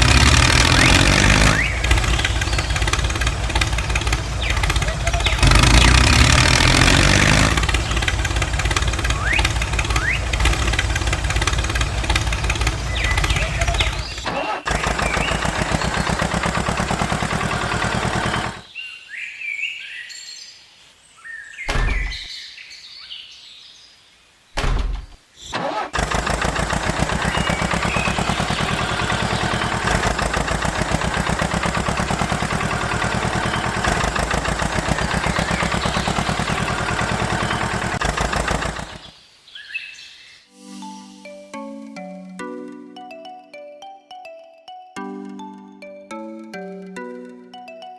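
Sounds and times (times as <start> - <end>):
small engine chugging: 0.0 - 18.6, 26.0 - 39.1
birds chirping: 0.0 - 20.1, 27.0 - 38.0.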